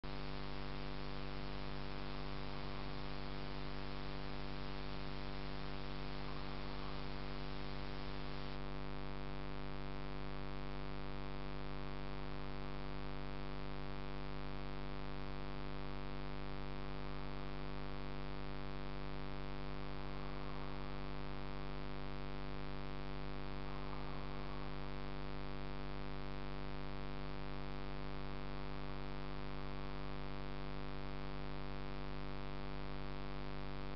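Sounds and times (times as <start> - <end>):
constant hiss: 0.0 - 8.6, 17.1 - 26.7
electrical hum: 0.0 - 32.1.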